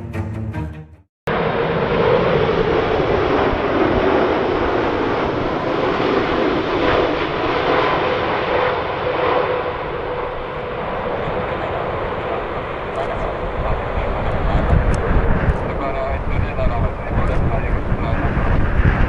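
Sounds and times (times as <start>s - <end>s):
jet engines whining: 1.3s - 19.0s
wind buffeting microphone: 9.8s - 19.0s.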